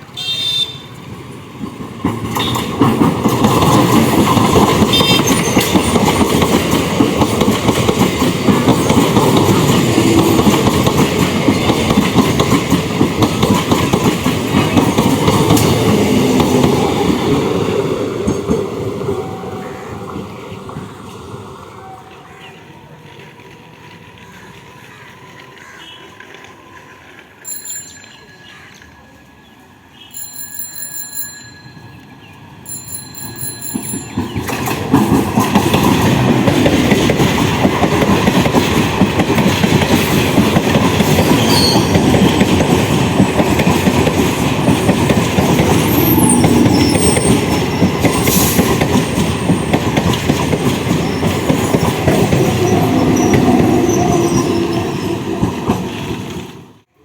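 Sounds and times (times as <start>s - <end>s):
train wheels rumbling on track: 0.0s - 57.0s
wheel squeal: 41.3s - 42.3s, 45.8s - 49.7s.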